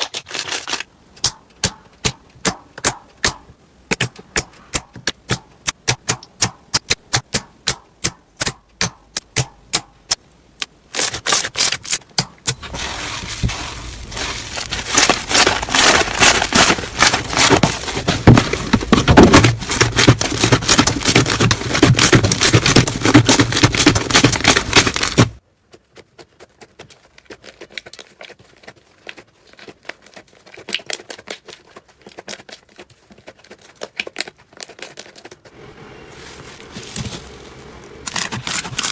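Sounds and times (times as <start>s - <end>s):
slime crackling: 12.6s - 25.4s.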